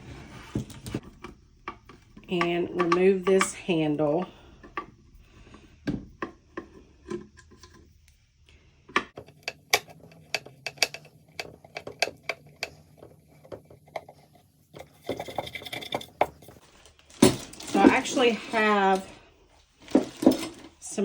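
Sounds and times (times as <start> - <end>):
hand tools clicking and tapping: 0.9 - 4.9, 8.9 - 16.6.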